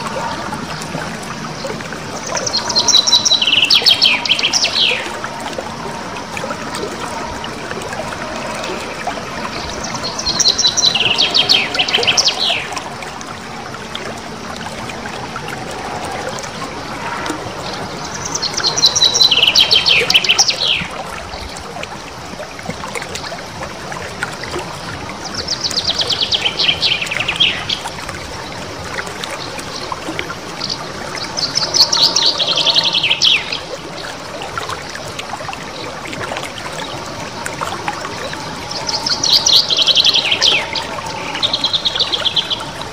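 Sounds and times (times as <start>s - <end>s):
songbird singing rolling trills: 2.2s - 5.2s, 9.6s - 12.8s, 18.0s - 21.0s, 30.6s - 34.1s, 38.6s - 42.8s.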